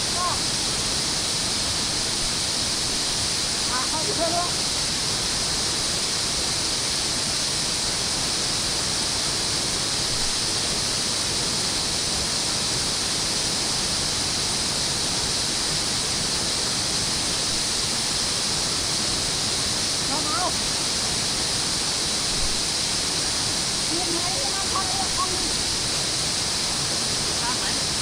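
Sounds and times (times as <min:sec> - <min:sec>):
water rushing through a dam: 0:00.0 - 0:28.0.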